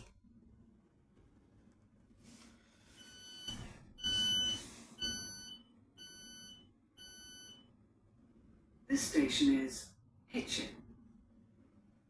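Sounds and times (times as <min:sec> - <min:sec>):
train door warning beeps: 0:03.0 - 0:07.6.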